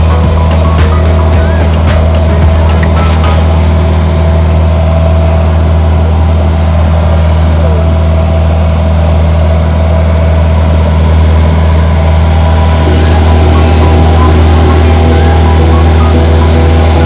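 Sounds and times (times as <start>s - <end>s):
large engine droning: 0.0s - 17.0s.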